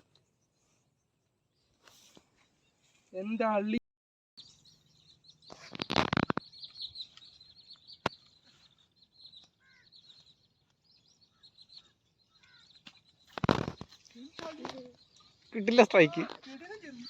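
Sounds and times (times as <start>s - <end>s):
small birds chirping: 0.0s - 3.8s, 4.4s - 17.0s
lower falling bird calls: 4.4s - 17.0s.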